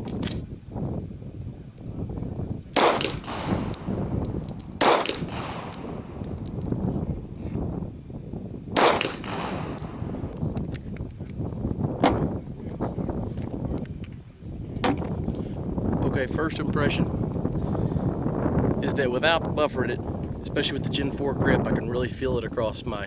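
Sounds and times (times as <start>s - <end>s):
pistol shots with echo: 2.8s - 7.0s, 8.8s - 10.5s
high metallic pings: 3.5s - 7.0s, 9.6s - 10.3s.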